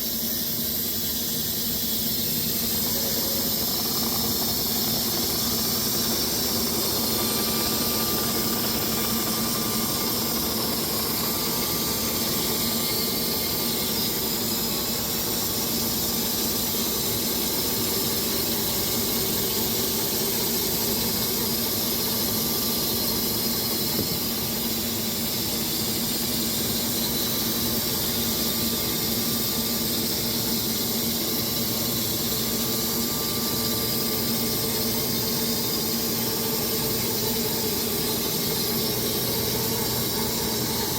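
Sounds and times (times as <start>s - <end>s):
band sawmill cutting logs: 3.5s - 16.9s, 31.8s - 40.9s.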